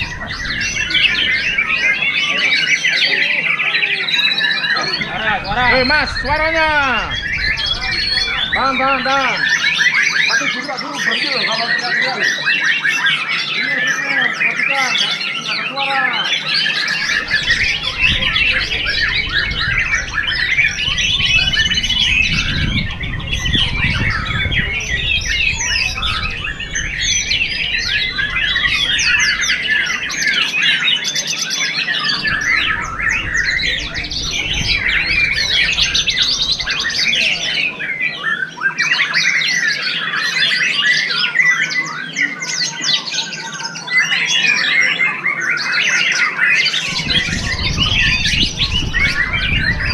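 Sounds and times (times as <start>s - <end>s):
low rumble: 0.0s - 2.2s, 5.0s - 9.5s, 17.0s - 30.6s, 32.1s - 37.7s, 46.8s - 49.9s
bird singing whistles and trills: 0.0s - 49.9s.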